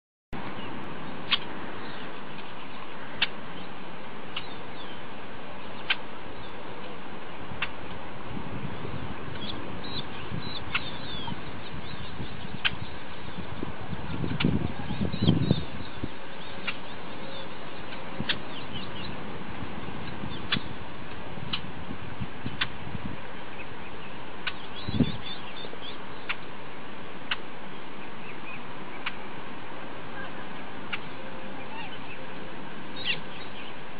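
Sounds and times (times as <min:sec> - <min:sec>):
bird chirps: 0:00.4 - 0:05.0, 0:09.4 - 0:19.2, 0:20.0 - 0:20.8, 0:23.5 - 0:26.4, 0:33.0 - 0:33.8
steady background hiss: 0:00.4 - 0:33.9.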